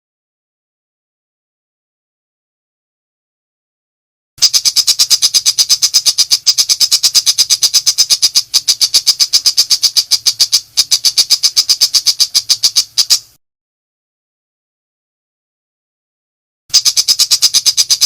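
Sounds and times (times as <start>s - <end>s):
shrike rapid chattering call: 4.4s - 13.4s, 16.7s - 18.0s.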